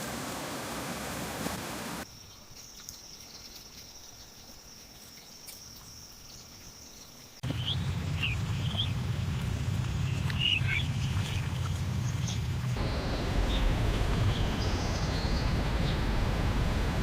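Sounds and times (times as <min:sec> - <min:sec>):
water rushing: 0:00.0 - 0:02.0, 0:07.4 - 0:17.0.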